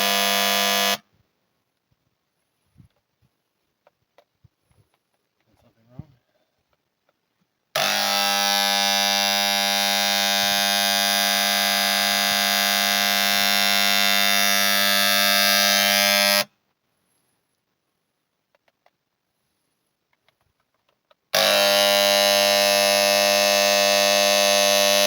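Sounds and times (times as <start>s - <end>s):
electric paint sprayer buzzing: 0.0s - 1.1s, 7.8s - 16.5s, 21.3s - 25.0s.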